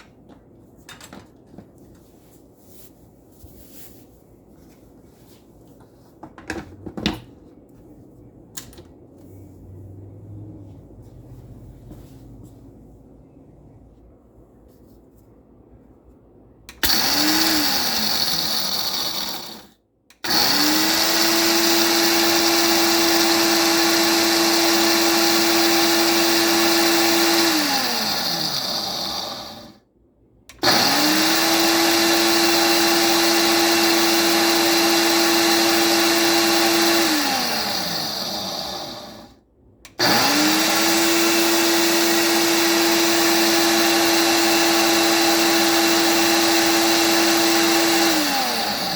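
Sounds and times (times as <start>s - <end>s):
grinder grinding coffee beans: 16.8s - 29.7s, 30.5s - 39.3s, 40.0s - 48.9s.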